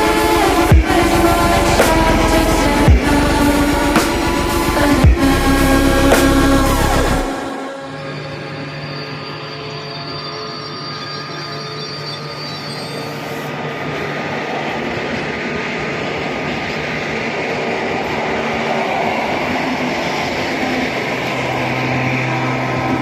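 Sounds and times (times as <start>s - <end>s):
train running past: 12.8s - 23.0s.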